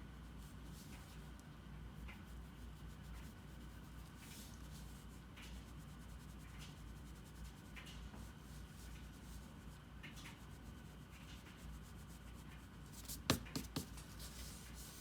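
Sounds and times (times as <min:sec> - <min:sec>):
drawing tool scratching paper: 0:13.0 - 0:15.0.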